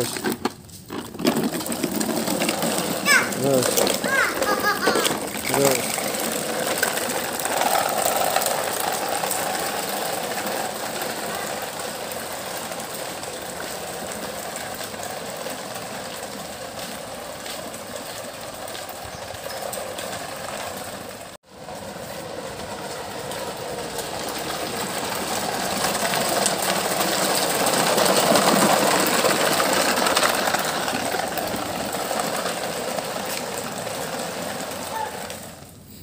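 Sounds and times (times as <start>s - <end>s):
toy truck motor whirring: 1.0s - 12.5s.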